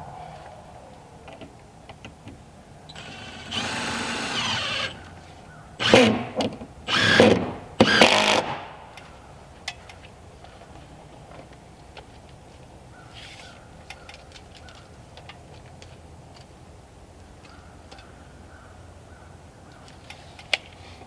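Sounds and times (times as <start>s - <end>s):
power drill running: 3.0s - 5.1s, 5.8s - 8.8s.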